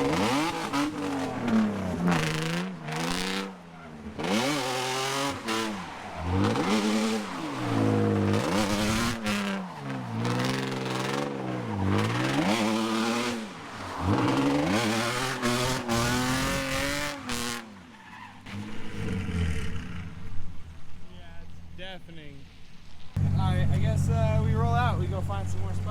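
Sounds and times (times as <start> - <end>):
car engine revving hard: 0.0 - 17.7
tyres squealing and skidding: 0.0 - 21.8
car engine idling: 23.2 - 25.9.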